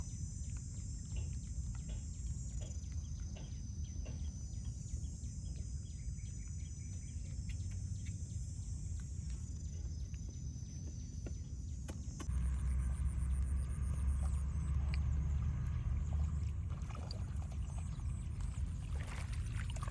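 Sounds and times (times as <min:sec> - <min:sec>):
low rumble: 0:12.2 - 0:19.9.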